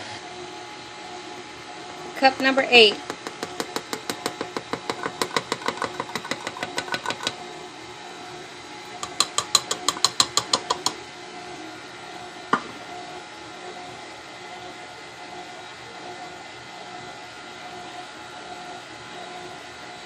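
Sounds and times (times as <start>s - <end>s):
stand mixer motor hum: 0.4s - 20.0s
dough knocking in bowl: 3.0s - 7.4s, 9.0s - 11.0s.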